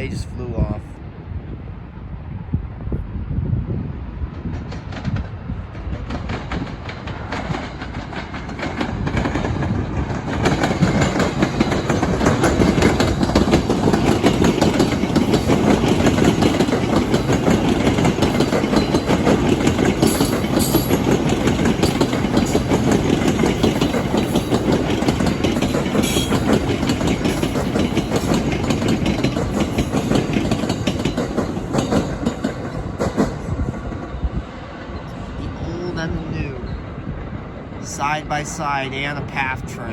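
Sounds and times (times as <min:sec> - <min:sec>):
train wheels clattering on rails: 0:04.3 - 0:35.1.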